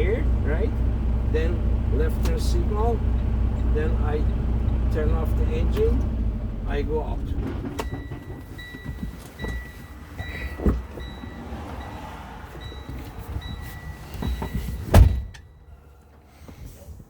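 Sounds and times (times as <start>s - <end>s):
truck warning chime beeping: 0.0s - 16.2s
dull thumps of climbing down: 7.4s - 11.4s
cab door slamming: 12.8s - 15.5s.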